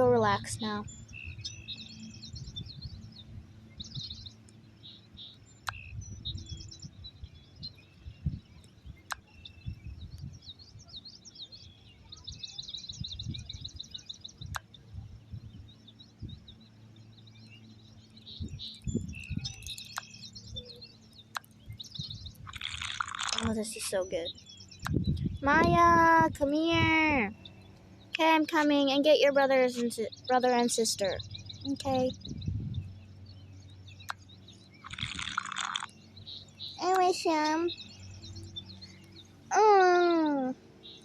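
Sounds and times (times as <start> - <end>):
low rumble: 0.0 - 11.2, 12.7 - 28.9, 30.0 - 35.5
small birds chirping and trilling: 0.0 - 41.0
sharp clicks: 18.7 - 20.2, 21.1 - 21.6, 22.3 - 24.0, 34.8 - 36.0.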